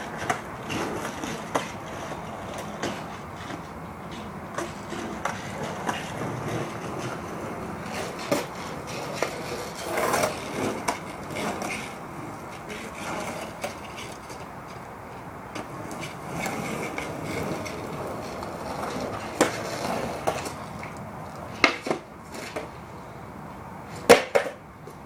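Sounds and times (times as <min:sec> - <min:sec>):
skateboard clacks: 0:00.0 - 0:23.0, 0:23.8 - 0:25.0
skateboard wheels rolling on pavement: 0:00.0 - 0:25.0.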